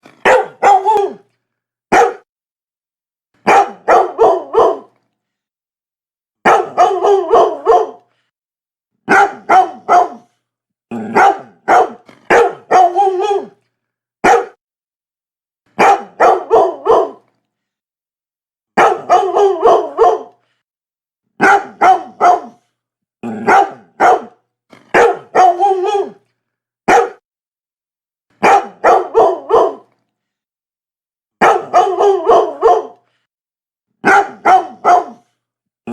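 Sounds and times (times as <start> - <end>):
dog barking: 0.1 - 1.2, 1.9 - 2.3, 3.4 - 4.9, 6.4 - 8.1, 9.0 - 10.3, 11.1 - 13.6, 14.2 - 14.6, 15.8 - 17.2, 18.8 - 20.4, 21.4 - 22.7, 23.4 - 26.2, 26.8 - 27.2, 28.4 - 29.9, 31.4 - 33.0, 34.0 - 35.3.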